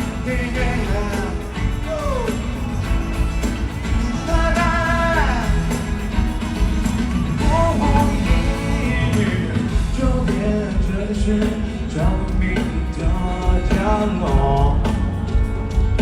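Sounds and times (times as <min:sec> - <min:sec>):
person singing: 0:00.0 - 0:02.8, 0:04.1 - 0:06.0, 0:07.4 - 0:15.0
live band with bass and drums: 0:00.0 - 0:16.0.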